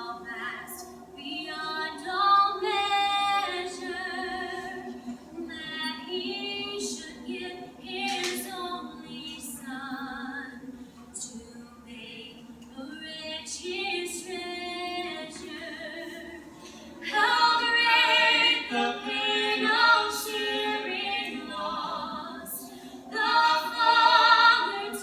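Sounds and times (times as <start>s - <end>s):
group singing a cappella: 0.0s - 25.0s.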